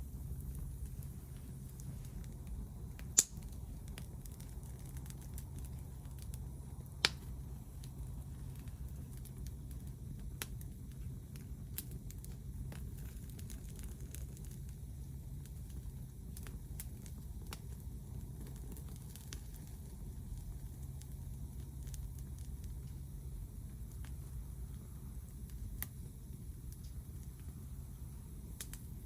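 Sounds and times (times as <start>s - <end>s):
low steady rumble: 0.0s - 29.0s
sharp pops from fire: 0.0s - 29.0s
wood fire crackling: 0.0s - 29.0s.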